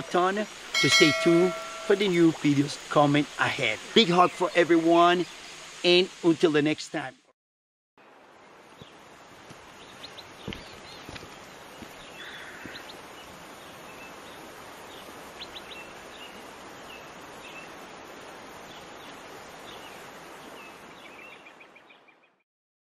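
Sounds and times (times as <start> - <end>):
outdoor background rush: 0.0 - 6.3, 8.0 - 21.0.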